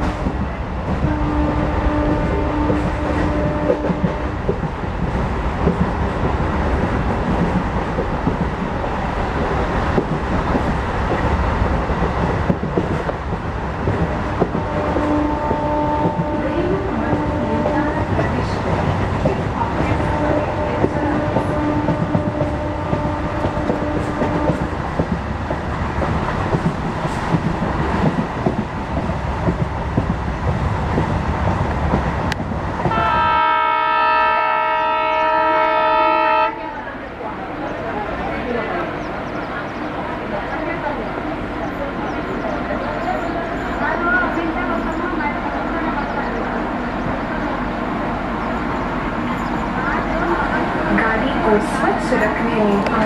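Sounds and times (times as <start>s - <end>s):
horn blasts: 14.7s - 16.5s, 32.9s - 36.8s.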